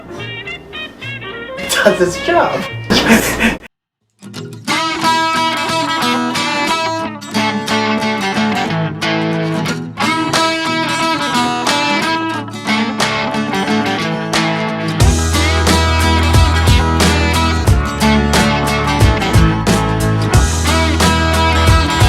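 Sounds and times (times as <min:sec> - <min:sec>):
upbeat guitar music: 0:00.0 - 0:03.6, 0:04.2 - 0:22.0
heavy bass line: 0:15.0 - 0:22.0.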